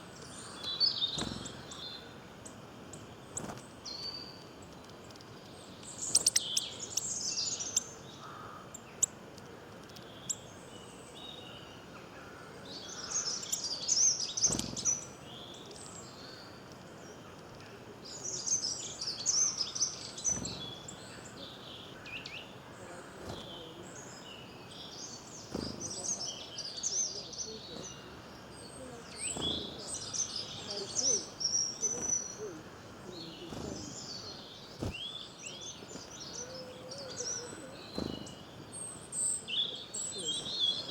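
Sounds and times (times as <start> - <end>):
small birds chirping: 0.0 - 40.9
steady background hiss: 0.0 - 40.9.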